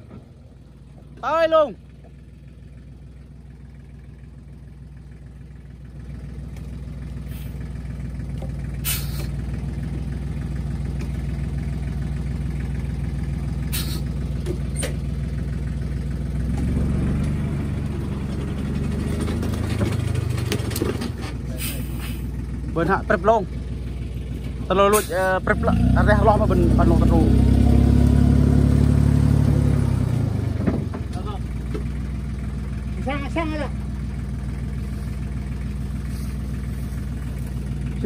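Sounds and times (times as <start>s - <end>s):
vehicle engine running: 0.0s - 38.0s
short hisses: 7.3s - 7.6s, 8.8s - 9.4s, 13.7s - 14.2s, 21.5s - 22.3s.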